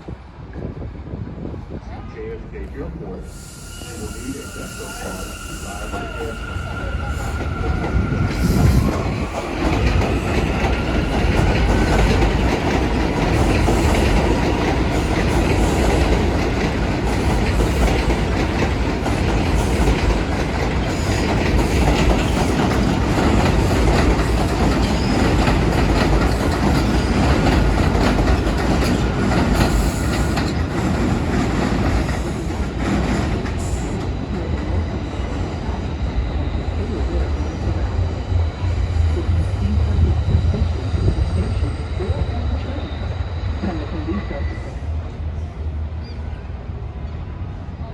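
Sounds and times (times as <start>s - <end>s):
subway train rumbling: 0.0s - 47.9s
faint wheel squeal: 3.2s - 7.9s
wheels clacking over rail joints: 7.2s - 34.2s.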